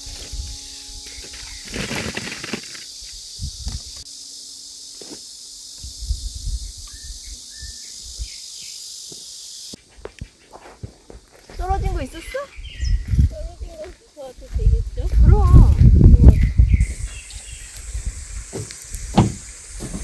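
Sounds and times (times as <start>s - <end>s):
insects chorus: 0.0s - 20.0s
handling knocks and rustling: 18.4s - 20.0s.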